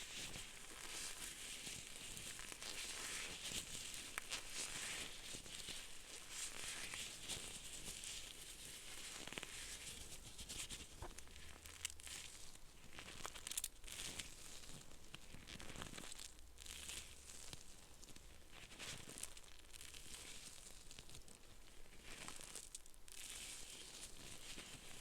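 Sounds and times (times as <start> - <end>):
crinkling and rustling: 0.2 - 21.4
small crackly clicks: 13.0 - 14.4.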